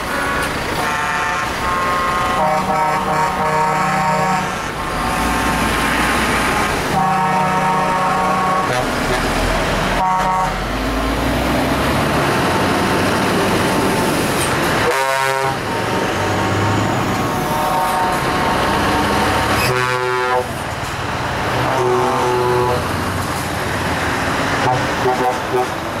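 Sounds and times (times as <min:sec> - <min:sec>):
truck air horns honking: 0:00.0 - 0:05.8, 0:06.6 - 0:10.7, 0:14.8 - 0:15.7, 0:17.2 - 0:20.6, 0:21.5 - 0:23.0, 0:24.5 - 0:26.0
heavy truck engines running: 0:00.0 - 0:26.0.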